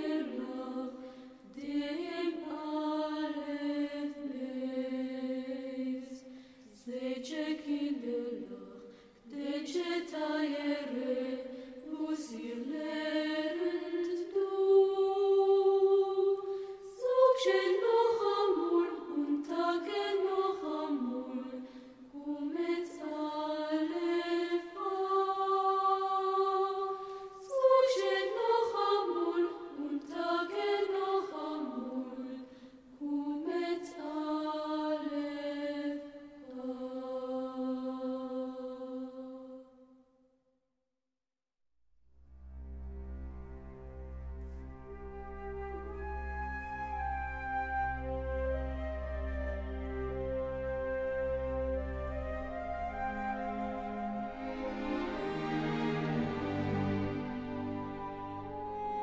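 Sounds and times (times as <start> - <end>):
slow chant-like singing: 0.0 - 40.1.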